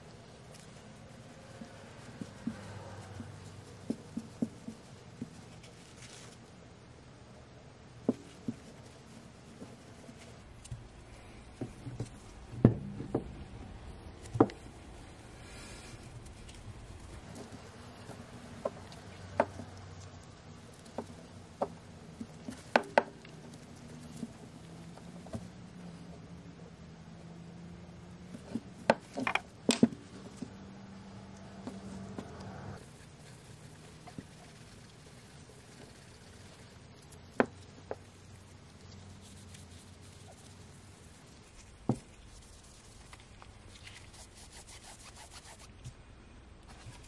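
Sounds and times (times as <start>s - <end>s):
cloth rubbing metal: 32.8s - 45.8s.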